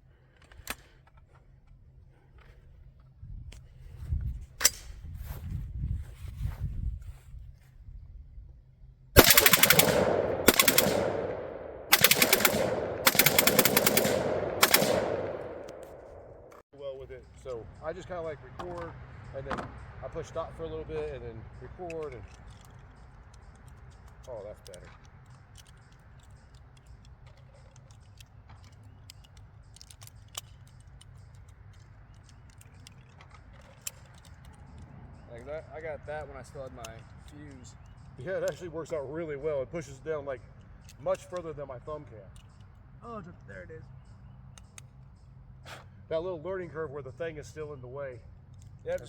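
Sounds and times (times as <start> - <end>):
metallic clicks of ammunition handling: 0.2 - 3.7, 4.6 - 4.9, 9.2 - 16.6, 20.2 - 39.0, 40.4 - 45.8, 48.2 - 49.0
rapid gunfire with echo: 9.2 - 16.6.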